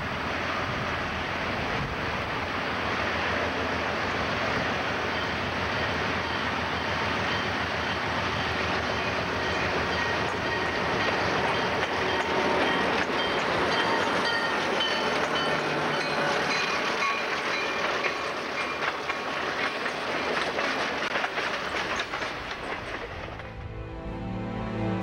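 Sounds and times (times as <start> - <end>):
diesel locomotives passing: 0.0 - 25.0
wheels clattering over rail joints: 5.1 - 23.6.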